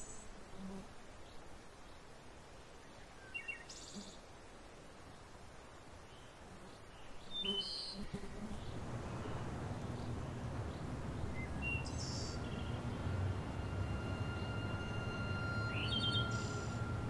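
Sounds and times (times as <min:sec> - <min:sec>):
birds chirping: 0:06.7 - 0:17.0
low outdoor rumble: 0:08.4 - 0:17.0
faint high tone: 0:08.8 - 0:17.0.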